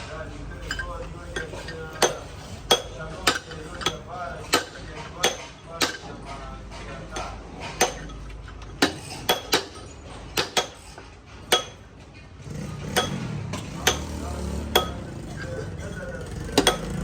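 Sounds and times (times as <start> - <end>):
steel tools striking metal parts: 0.1 - 17.0.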